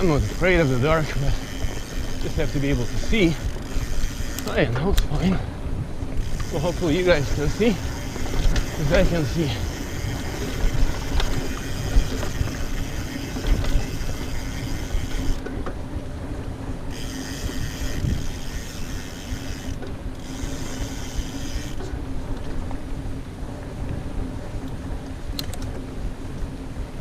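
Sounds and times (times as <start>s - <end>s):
bicycle freehub ratcheting: 0.0s - 4.6s, 6.2s - 15.5s, 16.9s - 21.9s
tyres and chain rattling: 0.0s - 5.4s, 6.2s - 15.6s.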